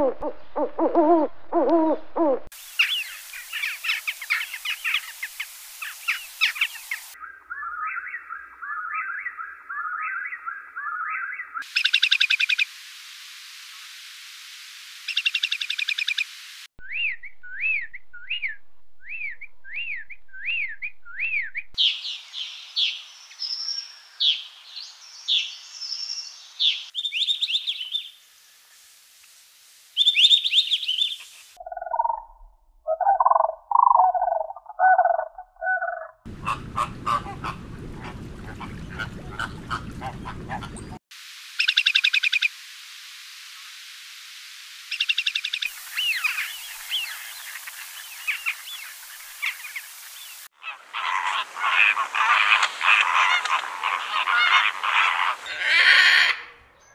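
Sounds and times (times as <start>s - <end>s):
whistled bird notes: 5.8s - 12.6s, 16.8s - 24.4s, 25.2s - 28.1s, 30.0s - 32.3s
bird chirps and trills: 16.8s - 24.5s, 30.0s - 36.1s, 44.9s - 52.6s
harsh bird calls: 44.9s - 56.9s.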